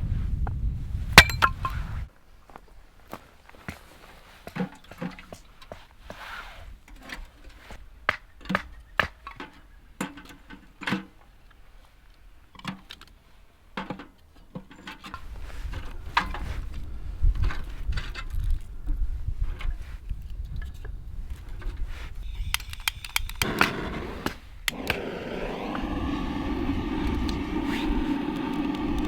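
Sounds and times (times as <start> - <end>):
low rumble: 24.7 - 29.0.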